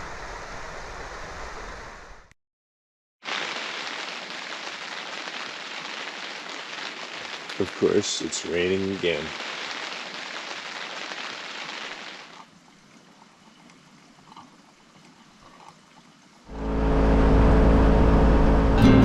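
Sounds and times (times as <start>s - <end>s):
steady rain falling: 3.2s - 14.2s
loud low rumble: 16.5s - 19.0s.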